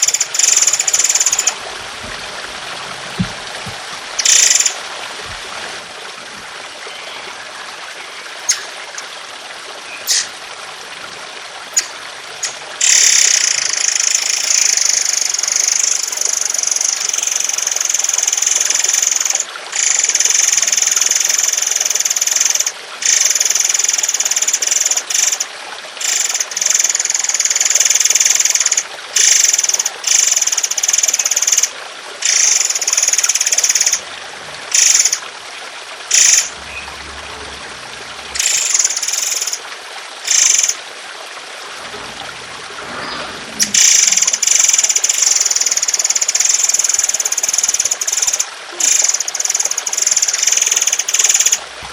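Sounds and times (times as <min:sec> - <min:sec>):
trickle of water: 0:00.0 - 0:51.9
songbird chattering song: 0:08.4 - 0:09.1, 0:09.8 - 0:10.4.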